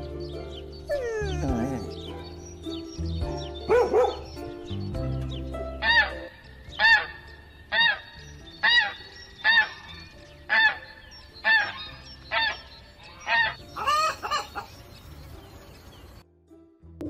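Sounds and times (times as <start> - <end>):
geese honking: 5.8 - 14.8.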